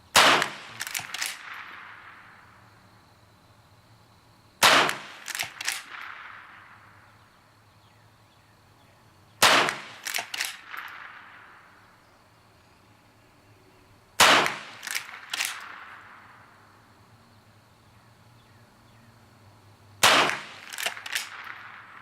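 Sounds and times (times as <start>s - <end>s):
rifle shots: 0.1s - 2.4s, 4.6s - 7.0s, 9.4s - 11.8s, 14.2s - 16.4s, 20.0s - 22.0s
rifle lever clacking: 0.8s - 1.5s, 10.0s - 11.0s.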